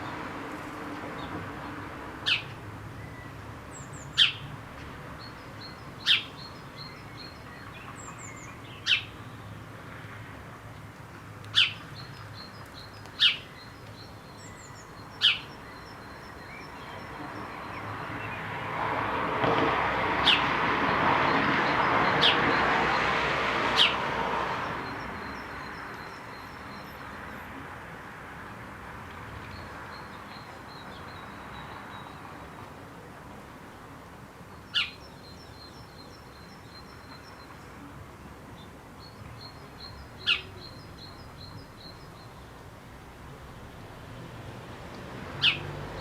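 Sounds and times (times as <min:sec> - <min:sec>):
high bird twittering: 0:11.5 - 0:17.8, 0:34.7 - 0:36.9, 0:39.8 - 0:42.0, 0:45.4 - 0:45.7.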